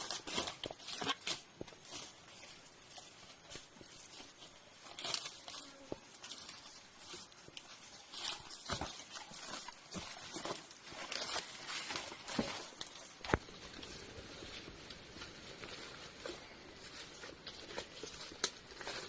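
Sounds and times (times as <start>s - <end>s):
dry leaves and twigs snapping: 0.0s - 19.0s
footsteps in undergrowth: 0.0s - 19.0s.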